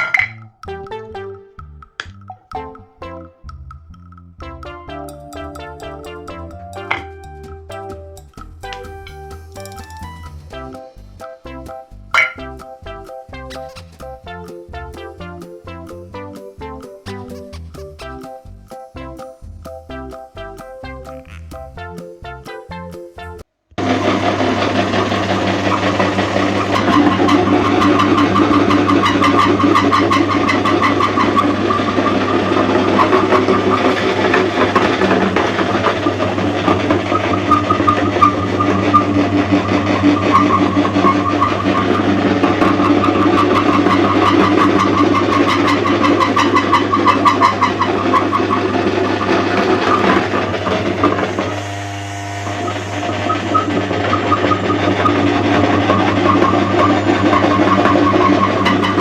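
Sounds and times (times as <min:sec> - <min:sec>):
electric meat grinder humming: 0:23.8 - 0:28.4, 0:31.5 - 0:45.3, 0:48.6 - 0:59.0.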